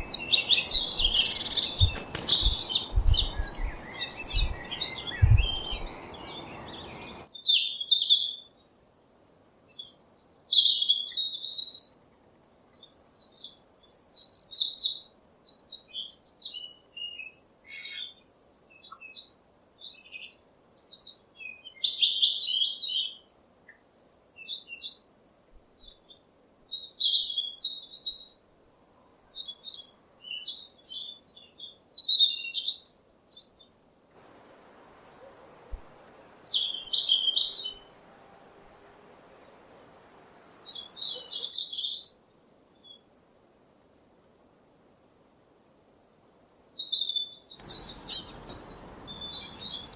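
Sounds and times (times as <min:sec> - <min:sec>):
bird chirping and twittering: 0:00.0 - 0:08.3, 0:35.7 - 0:42.2, 0:46.4 - 0:49.9.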